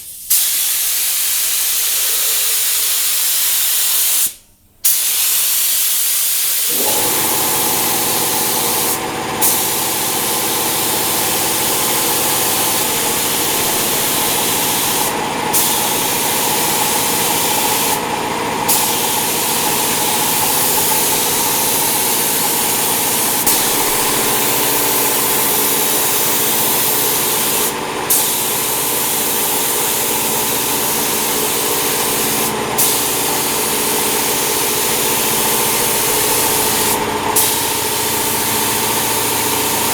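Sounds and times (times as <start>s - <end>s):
spray gun hissing: 0.0s - 39.9s
motor humming: 6.7s - 28.1s, 30.0s - 39.9s.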